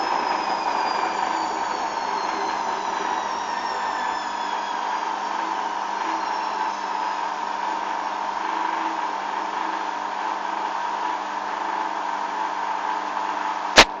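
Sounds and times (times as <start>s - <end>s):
washing machine spinning: 0.0s - 13.7s
sharp click: 13.8s - 14.0s.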